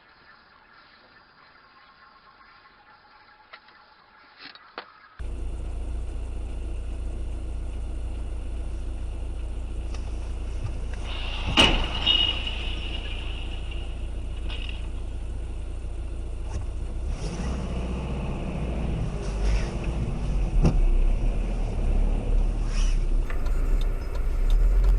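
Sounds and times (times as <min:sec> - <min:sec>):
vehicle driving rumble: 0:05.2 - 0:24.9
vehicle collision bangs: 0:10.7 - 0:15.0
high ringing: 0:11.1 - 0:14.8.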